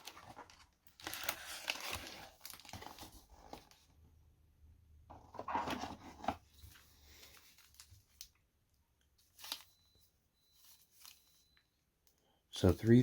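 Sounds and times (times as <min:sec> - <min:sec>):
foil wrapping tearing and rustling: 0:00.0 - 0:03.7.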